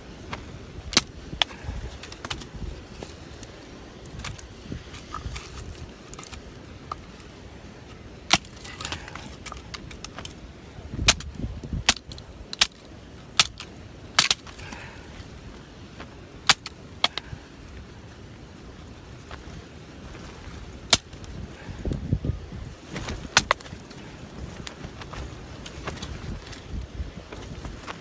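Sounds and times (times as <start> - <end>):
low background rumble: 0.0 - 28.0.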